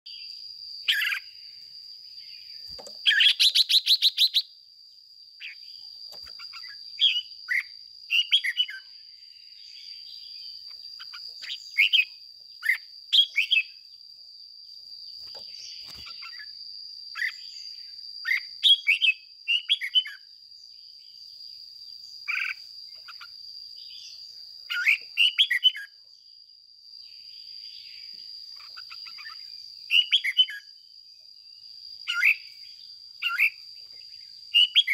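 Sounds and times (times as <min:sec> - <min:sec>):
bird singing short phrases: 0:02.2 - 0:04.5, 0:05.4 - 0:08.9, 0:09.6 - 0:13.8, 0:15.2 - 0:20.3, 0:22.2 - 0:26.0, 0:28.6 - 0:30.7, 0:32.1 - 0:34.9.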